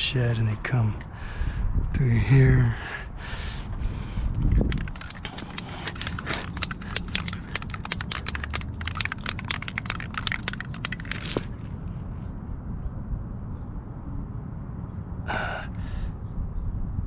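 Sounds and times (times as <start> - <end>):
motorcycle rolling with clicks: 4.3 - 11.6.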